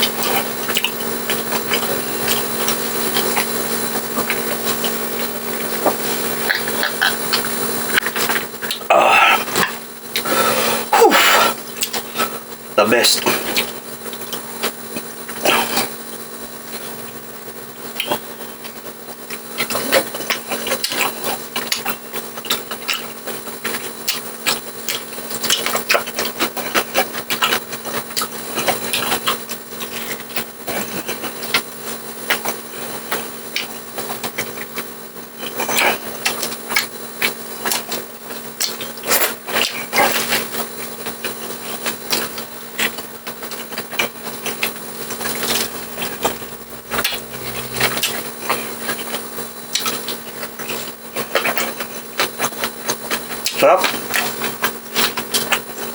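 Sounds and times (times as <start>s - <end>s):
steady hum: 0.0s - 23.0s, 41.6s - 54.8s.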